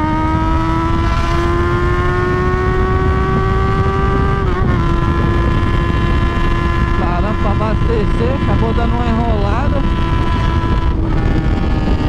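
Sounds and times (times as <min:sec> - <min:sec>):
motorcycle engine running hard: 0:00.0 - 0:12.0
wind rush: 0:00.0 - 0:12.0.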